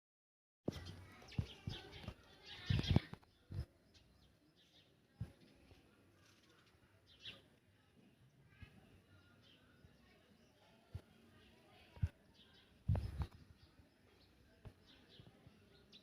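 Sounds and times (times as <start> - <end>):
high bird chirps: 0.7 - 4.9.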